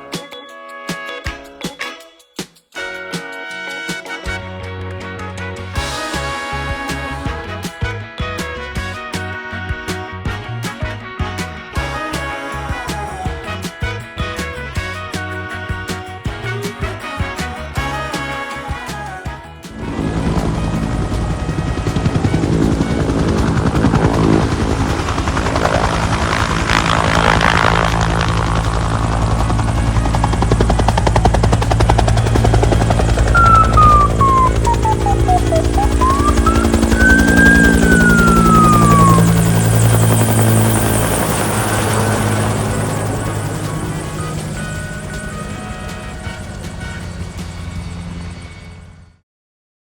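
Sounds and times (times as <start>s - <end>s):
hissing turbine: 19.7s - 45.5s
helicopter rotor chop: 19.7s - 49.0s
low engine drone: 19.7s - 49.1s.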